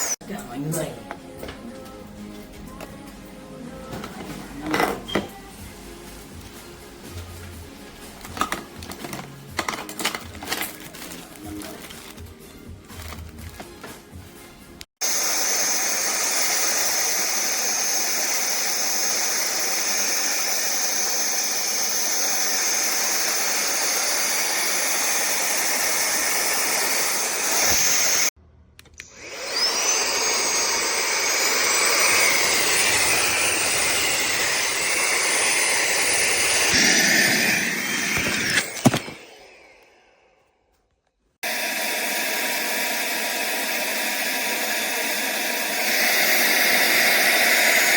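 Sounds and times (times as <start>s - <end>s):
handheld vacuum cleaner whining: 0.0s - 0.2s, 15.0s - 28.3s, 29.0s - 40.6s, 41.4s - 47.9s.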